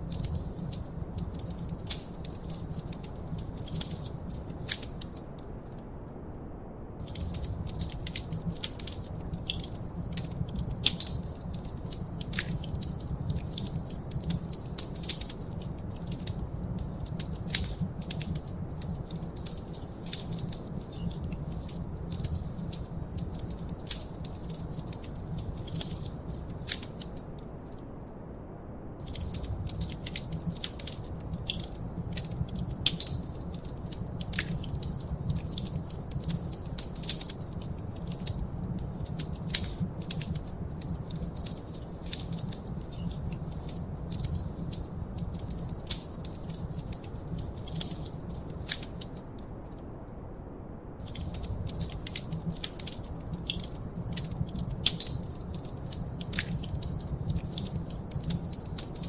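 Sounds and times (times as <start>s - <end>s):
wood fire crackling: 0.0s - 6.0s, 7.0s - 28.0s, 29.0s - 50.2s, 51.0s - 59.0s.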